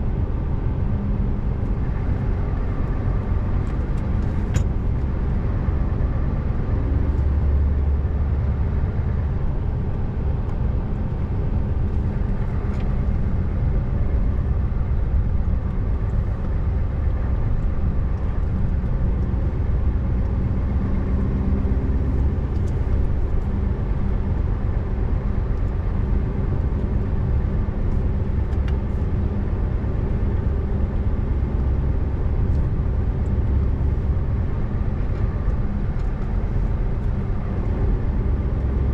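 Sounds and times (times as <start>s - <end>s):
diesel truck engine droning: 0.0s - 38.9s
road noise: 0.0s - 38.9s.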